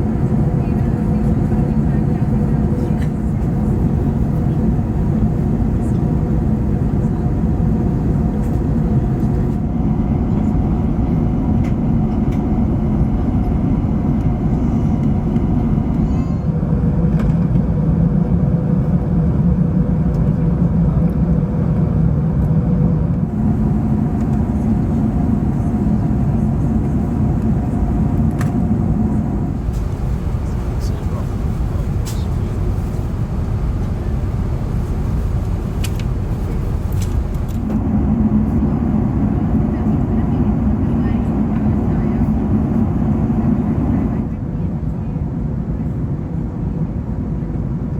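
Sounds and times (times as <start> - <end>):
aircraft cabin engine roar: 0.0 - 47.9
faint steady hum: 23.2 - 38.6.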